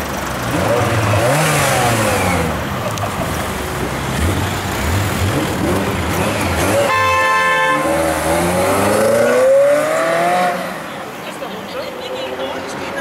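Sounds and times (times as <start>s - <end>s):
car engine revving and accelerating: 0.2s - 11.0s
car horn: 6.6s - 9.0s.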